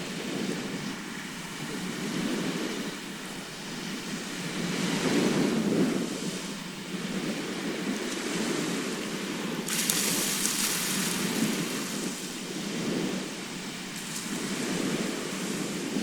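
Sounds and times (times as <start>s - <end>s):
sea surf washing onto shore: 1.1s - 16.0s
bright hiss of water: 9.7s - 12.5s.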